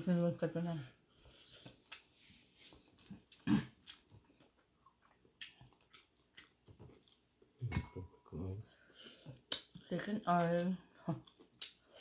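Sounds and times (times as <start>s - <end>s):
person chewing: 1.2s - 7.7s, 8.8s - 9.9s, 11.2s - 12.0s
wet mouth clicks and lip smacks: 9.5s - 9.8s.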